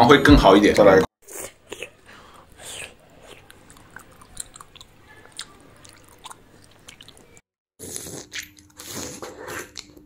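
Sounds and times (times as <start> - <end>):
person chewing with wet mouth clicks: 2.7 - 8.8.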